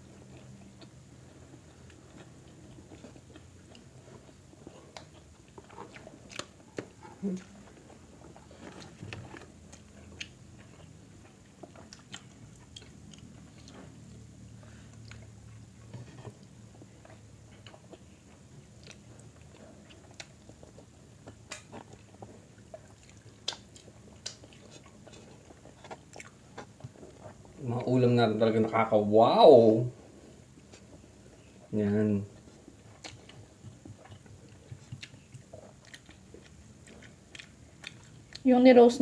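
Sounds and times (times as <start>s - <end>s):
chewing and biting food: 0.0s - 28.9s, 32.3s - 38.5s
wet mouth clicks and smacks: 23.4s - 24.5s.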